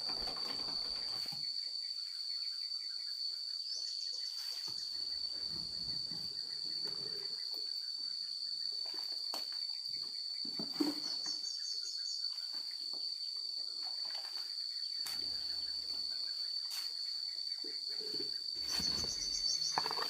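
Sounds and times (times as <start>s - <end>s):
insects droning: 0.0s - 20.0s
bird chirping: 10.0s - 13.2s, 14.4s - 20.0s.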